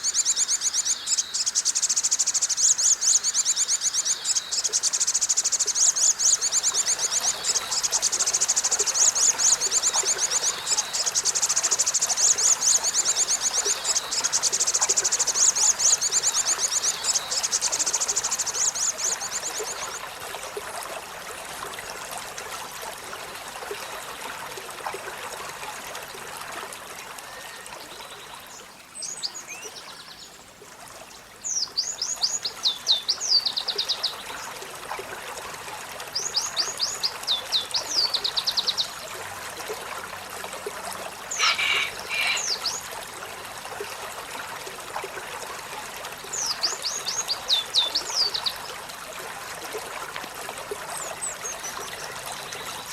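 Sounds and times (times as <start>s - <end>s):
running water: 0.0s - 52.9s
short bird calls: 41.3s - 42.8s
bird singing high trill: 41.4s - 42.7s.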